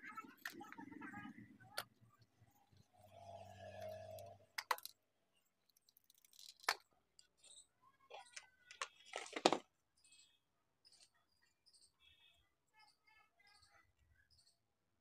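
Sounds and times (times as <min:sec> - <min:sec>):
metal parts clicking and scraping: 0:03.7 - 0:05.0, 0:05.6 - 0:07.7.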